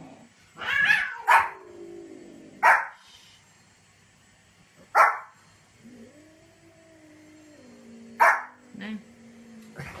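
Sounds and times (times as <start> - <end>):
dog barking: 1.2 - 1.6, 2.6 - 3.0, 5.0 - 5.3, 8.2 - 8.6.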